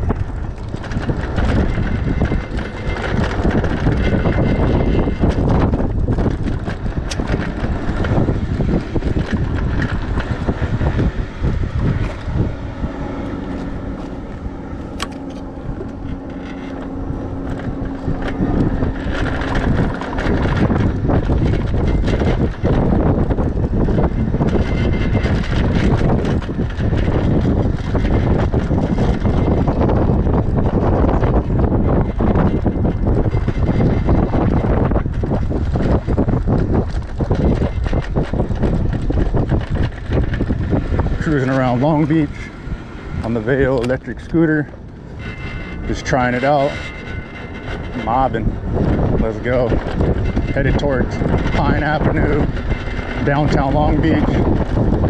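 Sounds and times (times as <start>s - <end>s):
steady low hum: 0.0s - 55.0s
wind buffeting microphone: 0.0s - 55.0s.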